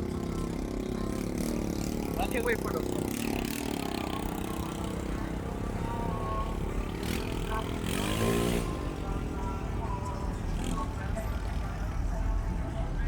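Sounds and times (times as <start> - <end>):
vehicle engine revving: 1.5 - 9.5, 10.4 - 11.2.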